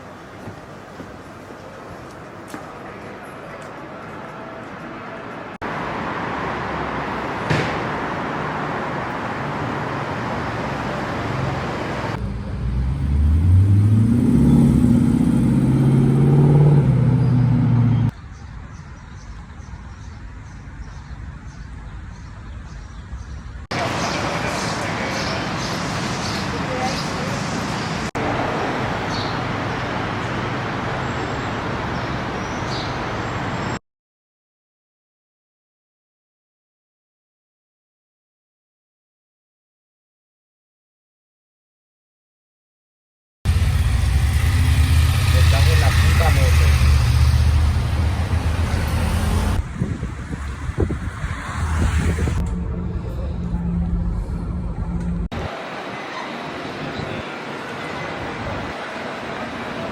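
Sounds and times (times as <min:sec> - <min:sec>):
street traffic noise: 0:00.0 - 0:33.8, 0:43.5 - 0:59.9
sports car engine accelerating: 0:12.2 - 0:18.1, 0:43.5 - 0:49.6.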